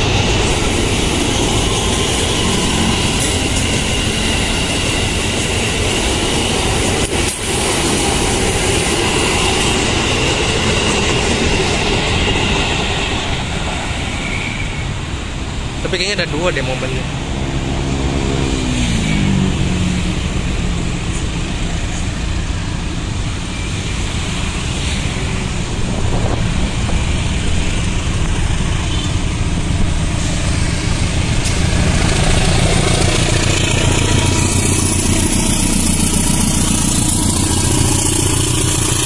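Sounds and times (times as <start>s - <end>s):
electric train passing: 0.0s - 39.0s
locomotive engine rumble: 0.0s - 39.0s
train wheel noise: 0.0s - 39.0s.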